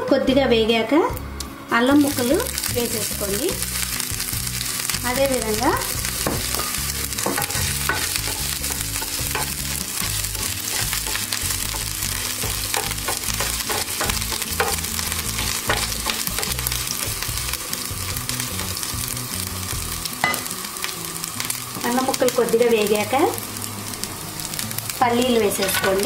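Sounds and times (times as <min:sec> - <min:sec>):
ginger sizzling in hot oil: 0:01.7 - 0:26.0
spatula stirring: 0:02.0 - 0:18.9.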